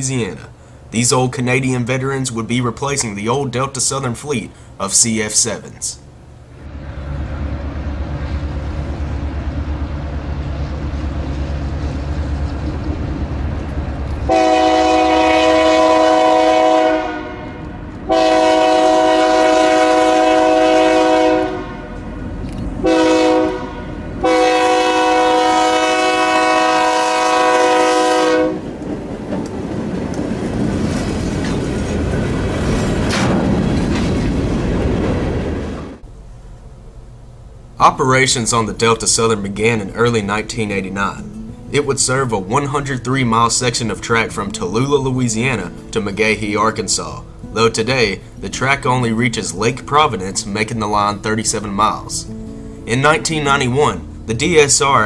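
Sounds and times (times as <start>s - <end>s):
diesel locomotive engine rumbling: 0.0s - 55.0s
freight cars wheels on rails: 6.7s - 14.3s, 28.6s - 36.0s
multi-tone air horn: 14.3s - 22.0s, 22.8s - 28.6s.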